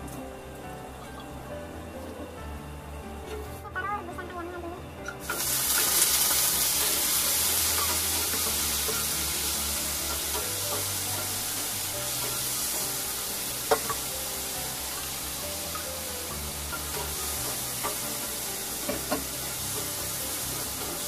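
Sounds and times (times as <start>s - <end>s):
food sizzling in hot oil: 5.0s - 21.0s.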